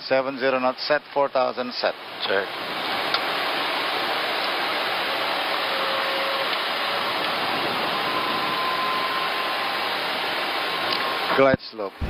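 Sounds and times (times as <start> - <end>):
airliner engine noise: 0.7 - 12.0
cockpit airflow noise: 2.0 - 11.5.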